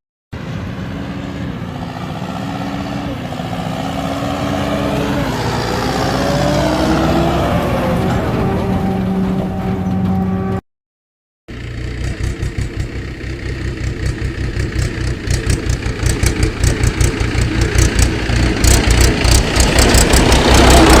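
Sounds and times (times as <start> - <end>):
motor engine idling: 11.5 - 21.0.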